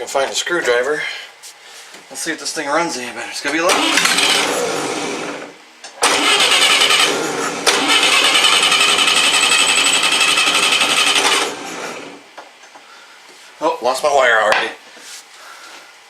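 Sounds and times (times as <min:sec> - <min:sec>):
engine cranked by starter: 0:03.7 - 0:12.2.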